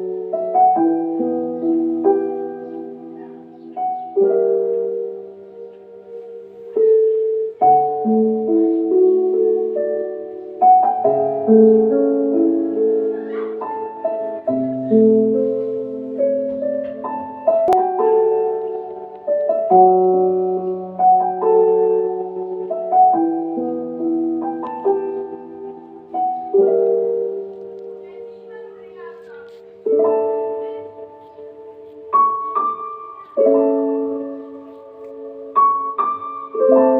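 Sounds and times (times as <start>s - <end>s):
gentle piano music: 0.0s - 36.9s.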